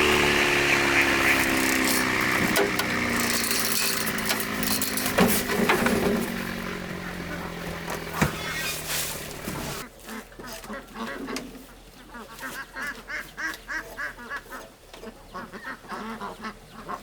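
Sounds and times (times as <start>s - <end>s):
motor running: 0.0s - 9.8s.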